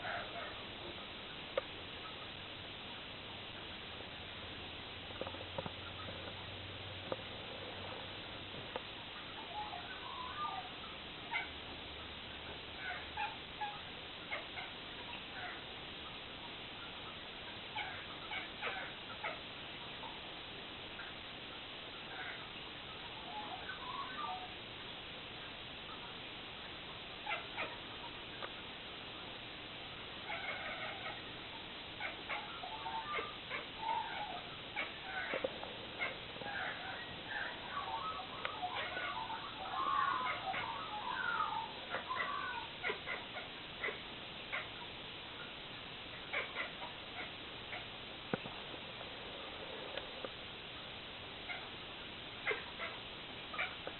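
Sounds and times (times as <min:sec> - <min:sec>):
background hiss: 0:00.0 - 0:53.9
cat chirping and chattering: 0:12.8 - 0:15.6, 0:17.7 - 0:20.2, 0:27.2 - 0:28.2, 0:30.2 - 0:45.5, 0:46.1 - 0:48.0, 0:52.3 - 0:53.9
cat chirping meows: 0:36.0 - 0:43.2.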